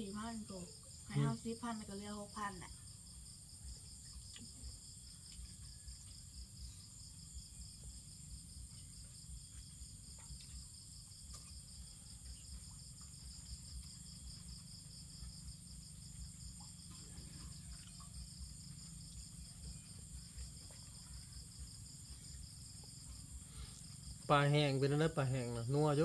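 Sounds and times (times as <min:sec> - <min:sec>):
crickets trilling: 0:00.0 - 0:26.0.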